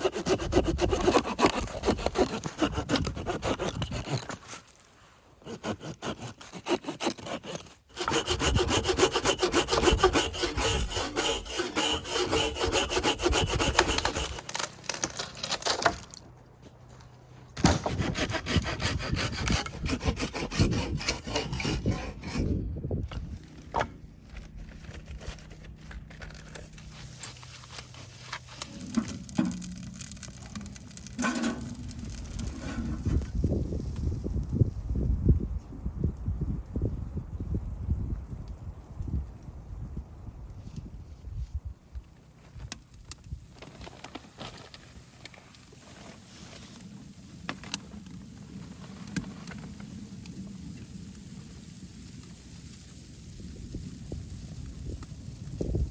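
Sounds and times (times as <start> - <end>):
hand saw cutting wood: 0.0 - 4.8, 5.4 - 16.1, 17.6 - 23.2, 24.9 - 30.1.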